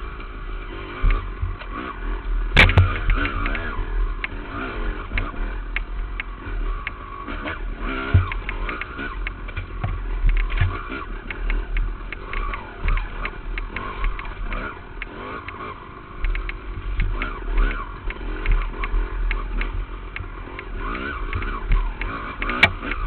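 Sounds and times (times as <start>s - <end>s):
dirt bike engine revving: 0.0s - 23.0s
sharp crack: 2.6s - 4.4s.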